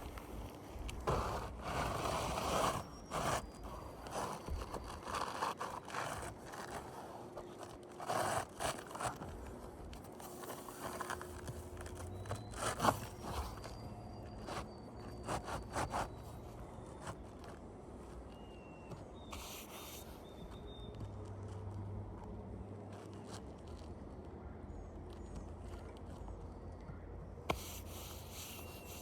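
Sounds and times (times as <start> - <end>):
shingle scraping and tearing: 0.0 - 20.2.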